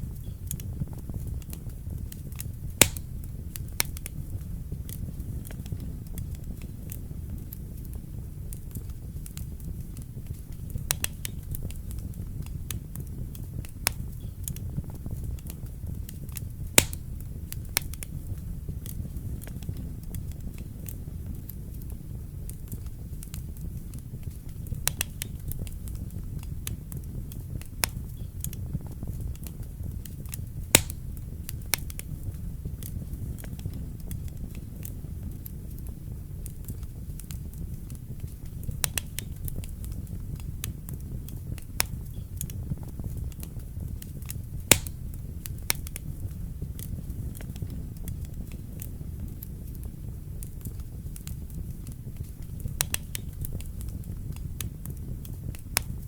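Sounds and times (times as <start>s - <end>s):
fire popping: 0.0s - 56.0s
fire rumbling: 0.0s - 56.0s.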